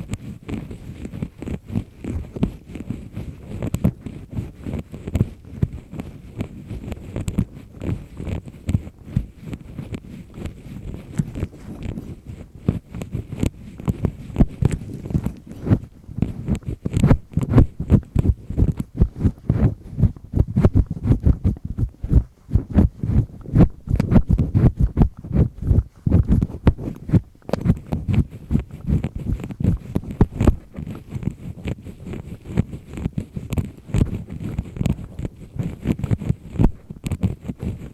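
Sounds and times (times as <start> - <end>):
earpick scraping inside ear: 0.0 - 37.9.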